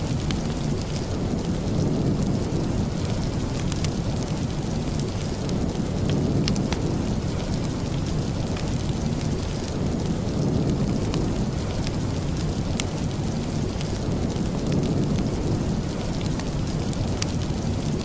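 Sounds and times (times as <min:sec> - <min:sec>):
heavy rain: 0:00.0 - 0:18.0.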